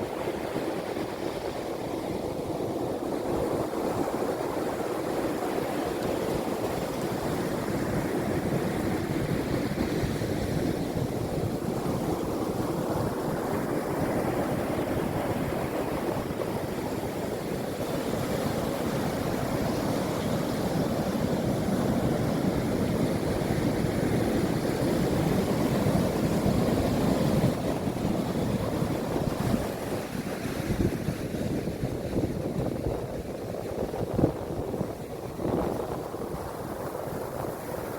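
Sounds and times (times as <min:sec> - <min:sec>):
wind buffeting microphone: 0:00.1 - 0:37.9
sea waves breaking: 0:11.2 - 0:37.9.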